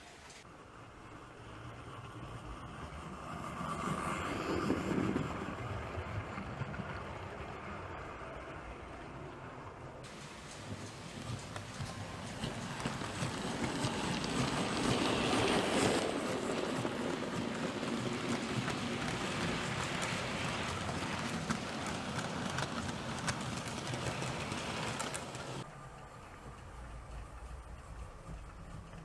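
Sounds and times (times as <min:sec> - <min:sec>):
model train rolling rumble: 0:00.3 - 0:29.0
clicks at rail joints: 0:10.1 - 0:25.6.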